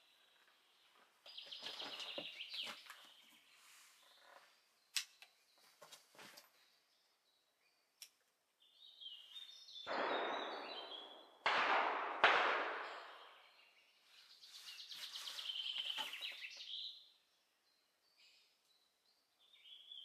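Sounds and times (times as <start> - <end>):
songbirds chirping: 0.0 - 11.5, 12.7 - 20.0
sharp crack: 9.9 - 13.6.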